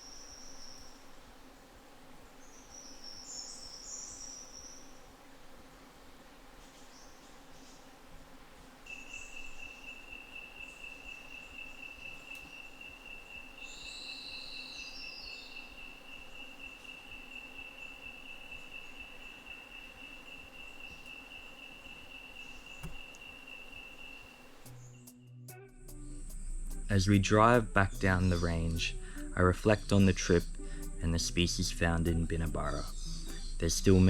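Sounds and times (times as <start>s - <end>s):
insect trilling: 8.8s - 25.2s, 25.9s - 34.0s.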